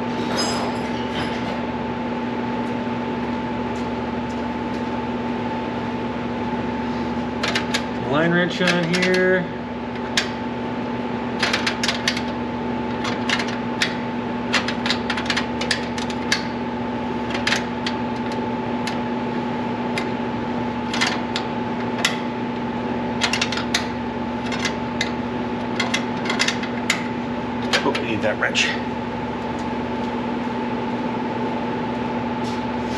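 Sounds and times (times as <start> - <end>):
steady humming drone: 0.0 - 32.9.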